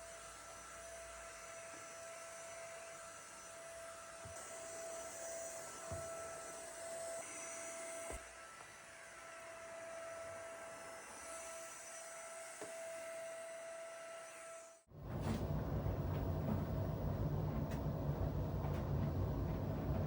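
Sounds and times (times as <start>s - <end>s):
quiet mechanical hum: 15.0s - 20.0s.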